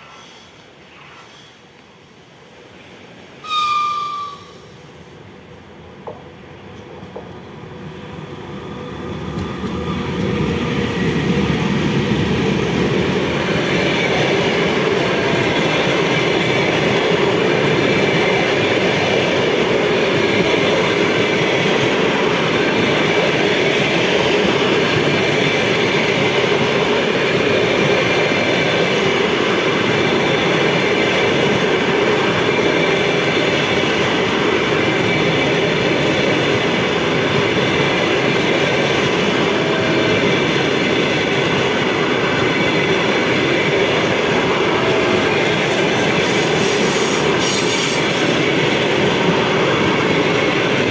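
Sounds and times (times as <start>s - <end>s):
train wheels on rails: 0.0s - 50.9s.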